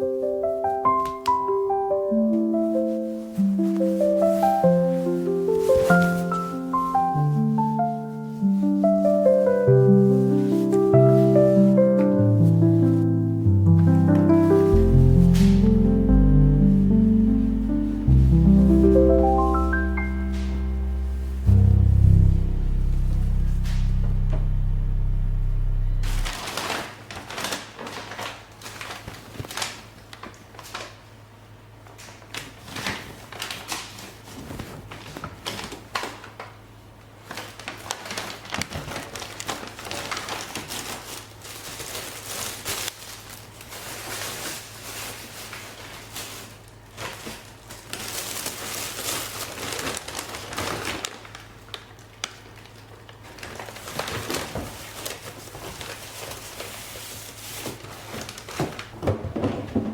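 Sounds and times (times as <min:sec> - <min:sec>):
plastic bags crinkling: 0:02.4 - 0:24.7, 0:26.1 - 0:31.1, 0:31.8 - 0:59.9
steady low hum: 0:10.9 - 0:26.6.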